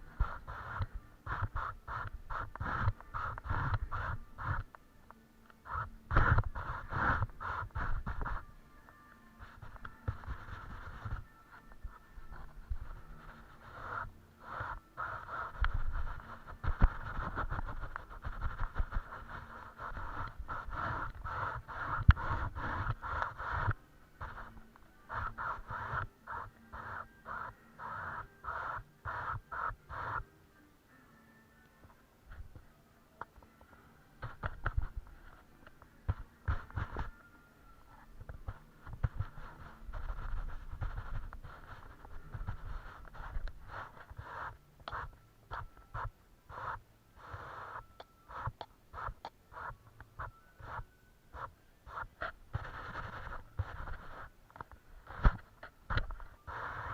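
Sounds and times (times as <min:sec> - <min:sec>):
paintbrush scrubbing canvas: 0:00.0 - 0:04.6, 0:05.6 - 0:08.5, 0:09.4 - 0:11.3, 0:11.9 - 0:30.2, 0:38.0 - 0:54.3
taps knocks and scraping: 0:34.2 - 0:37.1, 0:51.4 - 0:56.9.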